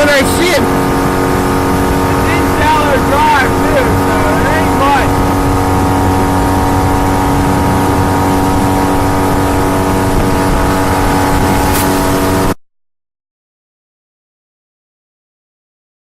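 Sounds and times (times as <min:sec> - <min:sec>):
outboard motor running: 0:00.0 - 0:12.6.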